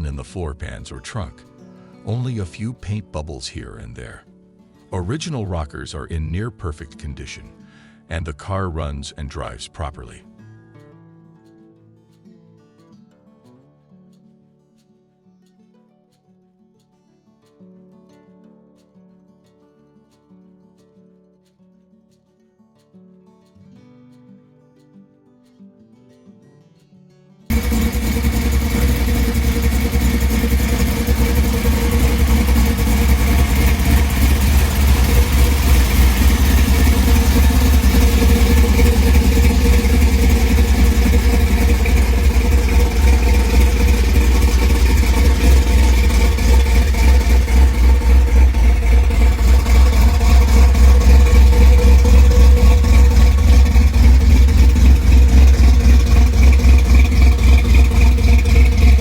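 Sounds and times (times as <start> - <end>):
car engine idling: 27.5 - 59.0.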